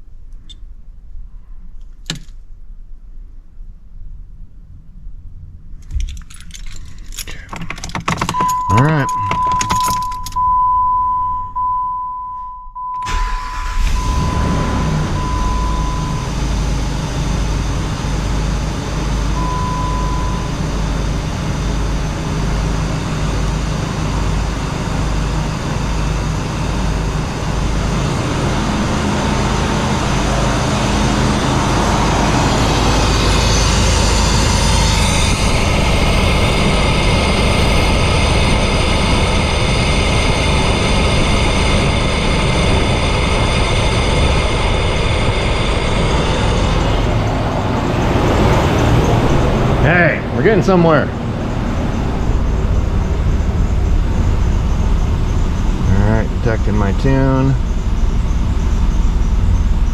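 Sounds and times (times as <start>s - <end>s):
car engine running: 4.5s - 11.9s, 13.0s - 59.9s
dashboard chime beeping: 8.3s - 13.2s, 15.1s - 16.3s.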